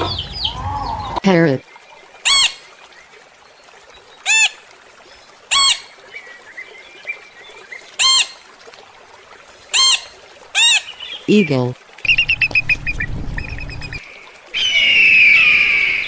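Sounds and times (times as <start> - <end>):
parrot squawking: 2.2 - 2.6, 4.3 - 4.6, 5.5 - 5.9, 8.0 - 8.4, 9.7 - 11.0.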